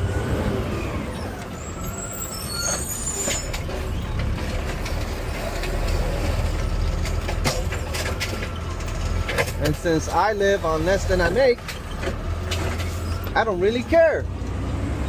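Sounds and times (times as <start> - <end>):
diesel engine rumbling: 0.0 - 15.0
sharp knocks and rattles: 3.3 - 10.3, 11.3 - 13.4.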